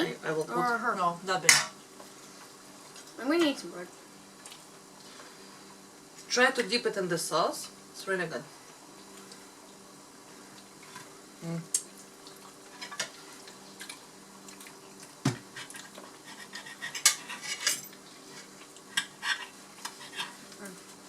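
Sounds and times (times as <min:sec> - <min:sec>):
cutlery clinking on plates: 0:15.6 - 0:18.0.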